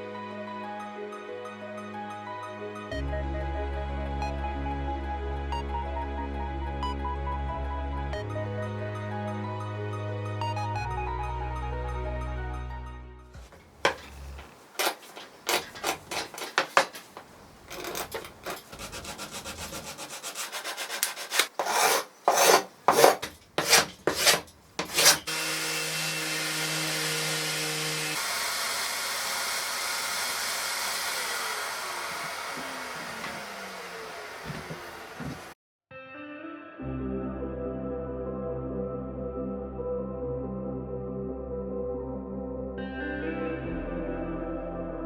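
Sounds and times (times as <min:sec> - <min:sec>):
hand rubbing wood: 0:13.4 - 0:25.3.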